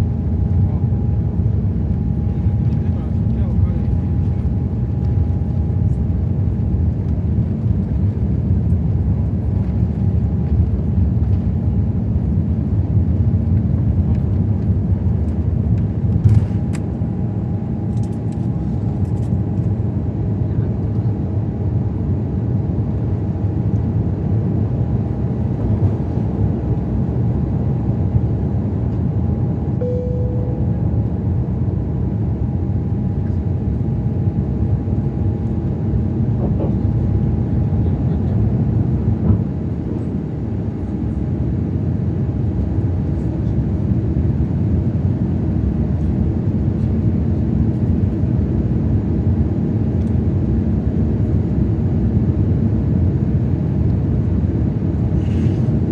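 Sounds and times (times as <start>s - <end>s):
faint engine whine: 0.0s - 55.9s
short tone: 29.8s - 31.2s.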